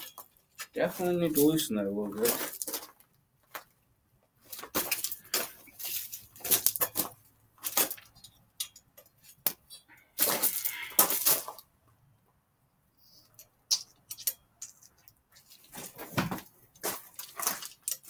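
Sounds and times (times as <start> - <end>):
hand tools clicking on metal: 4.6 - 11.6, 13.3 - 15.2, 16.8 - 18.0.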